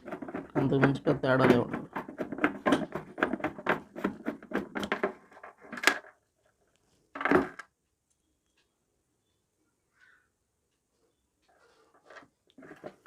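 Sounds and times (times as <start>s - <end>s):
small clicks and knocks: 0.0s - 8.8s.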